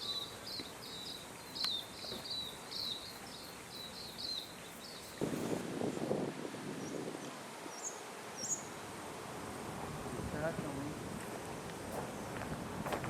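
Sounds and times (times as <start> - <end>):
bird chirping: 0.0 - 5.2.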